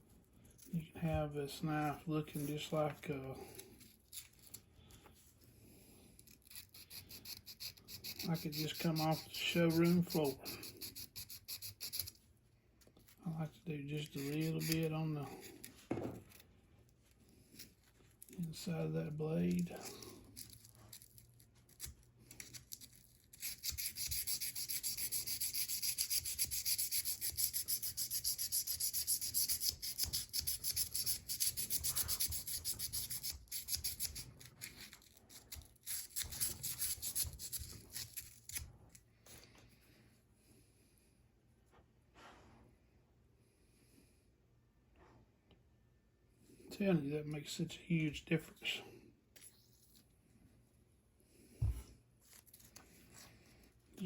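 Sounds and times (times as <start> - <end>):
sandpaper scratching steel blade: 6.2 - 12.2, 14.0 - 15.7, 19.5 - 38.7.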